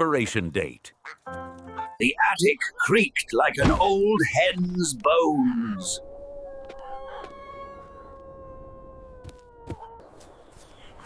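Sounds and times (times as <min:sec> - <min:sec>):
long steady howl: 0:05.9 - 0:10.3.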